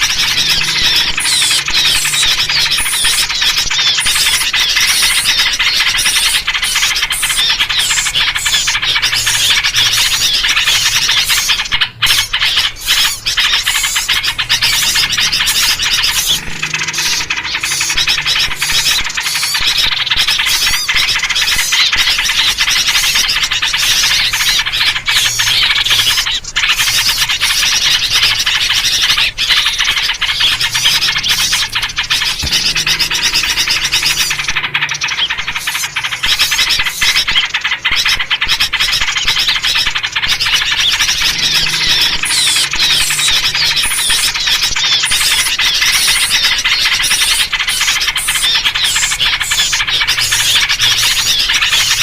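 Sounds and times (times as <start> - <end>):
bulbul calls: 0.0 - 52.0
chorus of small birds calling: 0.0 - 52.0.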